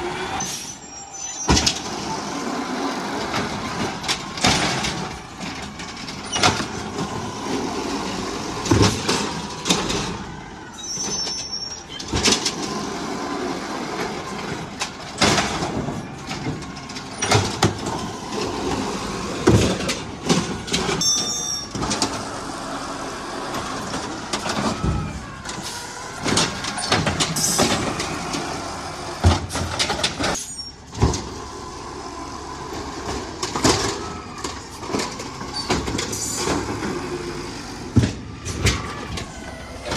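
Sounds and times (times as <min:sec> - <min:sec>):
garbage truck engine running: 0:00.0 - 0:39.9.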